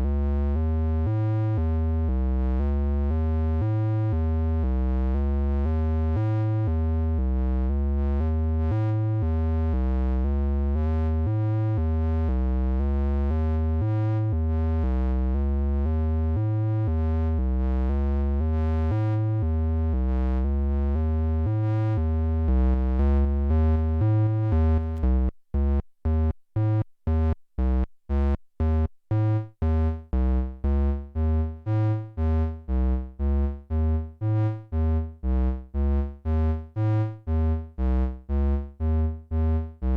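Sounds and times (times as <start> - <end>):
synthesizer bass sequence: 5.0 - 39.9.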